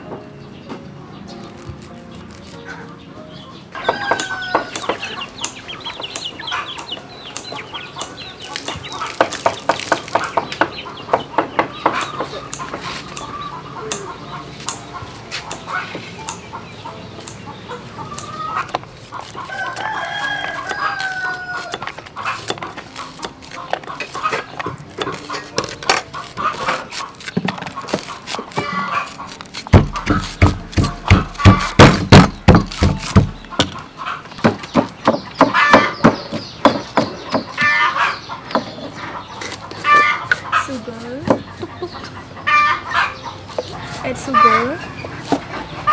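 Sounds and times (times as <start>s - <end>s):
chickens clucking: 0.0s - 45.9s
rooster crowing: 3.8s - 5.2s, 19.5s - 21.9s
sharp clicks: 4.1s - 10.7s
heavy regular knocks: 29.7s - 37.5s.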